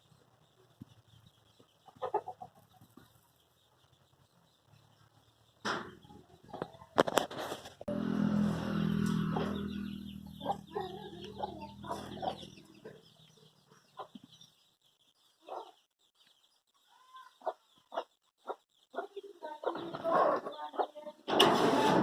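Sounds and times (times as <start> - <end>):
chickens clucking: 0.1 - 22.0
low droning hum: 7.9 - 12.7.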